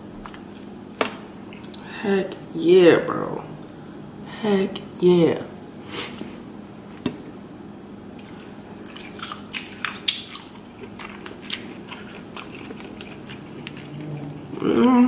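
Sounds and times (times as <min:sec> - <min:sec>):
steady low hum: 0:00.0 - 0:15.0
person chewing: 0:08.2 - 0:15.0
wet mouth clicks and smacks: 0:08.9 - 0:10.5.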